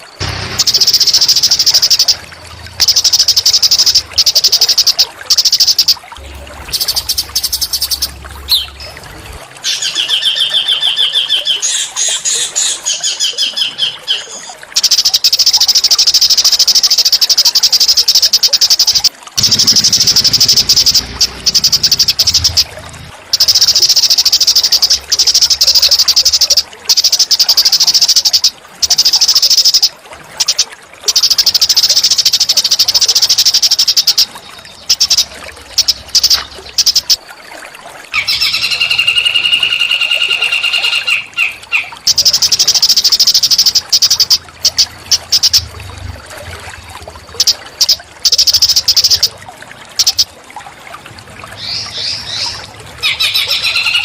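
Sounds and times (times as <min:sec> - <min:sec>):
whistled bird call: 0:38.2 - 0:44.4, 0:51.6 - 0:54.0.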